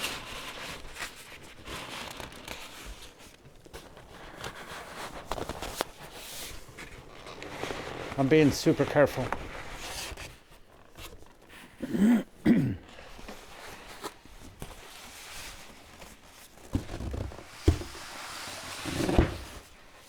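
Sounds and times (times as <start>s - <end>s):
packaging rustling: 12.9s - 20.0s.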